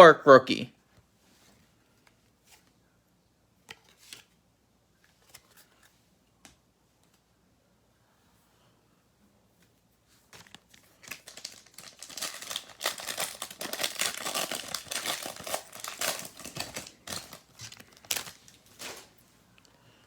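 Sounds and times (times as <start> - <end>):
foil wrapper crinkling and tearing: 10.4 - 19.2.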